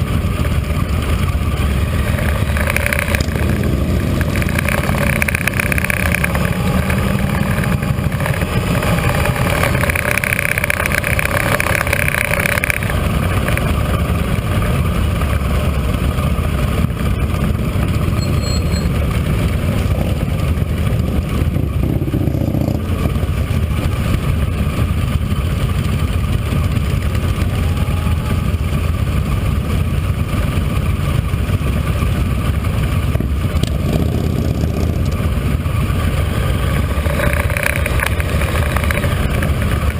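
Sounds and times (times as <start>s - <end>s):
higher-pitched whine: 0.0s - 20.4s, 25.1s - 29.9s
motorcycle engine rumbling: 0.0s - 39.9s.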